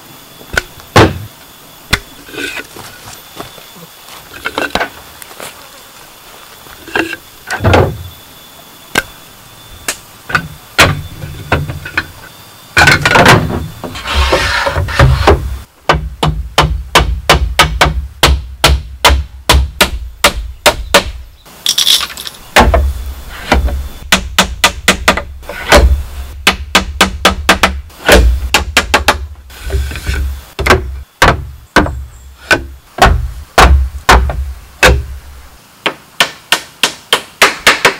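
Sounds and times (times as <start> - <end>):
hammering on bamboo: 14.9 - 21.2, 22.6 - 22.9, 23.5 - 37.9.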